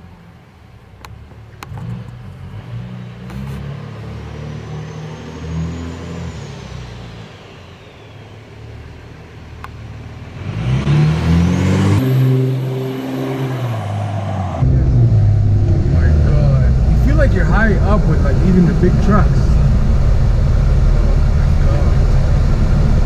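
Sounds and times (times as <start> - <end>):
diesel truck engine running: 0.0 - 23.0
turbocharger whistle: 4.6 - 9.4, 10.5 - 23.0.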